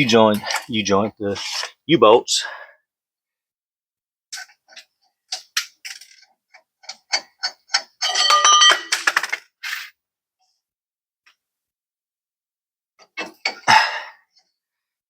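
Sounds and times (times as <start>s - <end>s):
metal clanking with ringing tone: 7.8s - 9.0s.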